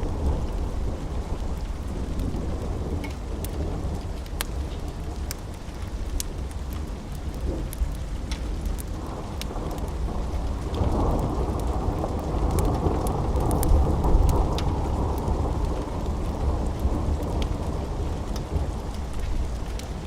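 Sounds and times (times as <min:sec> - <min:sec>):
steady rain: 0:00.0 - 0:20.0
rolling thunder: 0:09.0 - 0:19.6.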